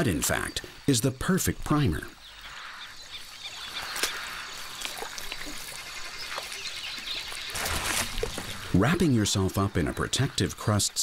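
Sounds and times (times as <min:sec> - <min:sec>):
mud and water sloshing: 0:03.2 - 0:10.2
mud splats: 0:03.6 - 0:09.6.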